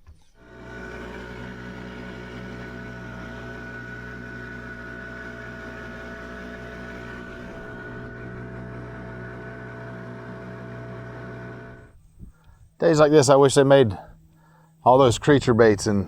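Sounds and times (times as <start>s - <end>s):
boat motor humming with whine: 0.3s - 12.8s.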